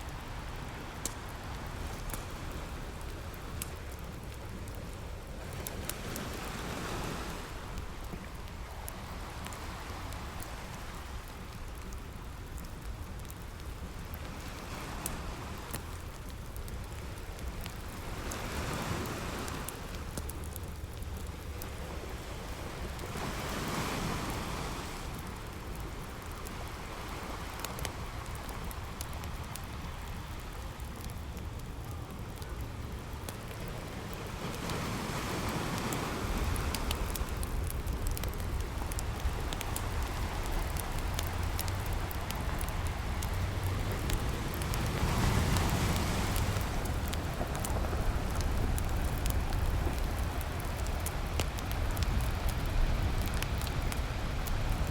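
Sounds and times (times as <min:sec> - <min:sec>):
campfire crackling: 0:00.0 - 0:54.9
ocean waves washing on beach: 0:00.0 - 0:54.9.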